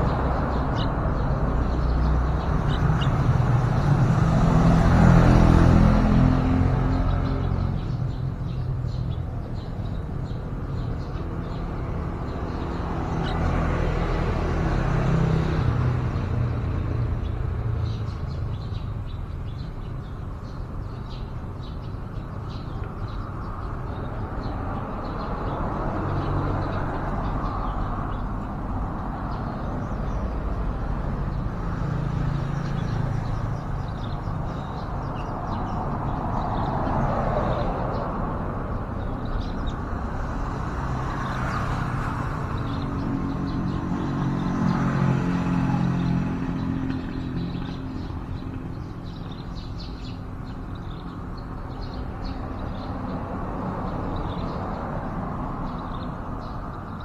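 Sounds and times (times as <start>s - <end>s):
road traffic rumbling: 0.0s - 57.0s.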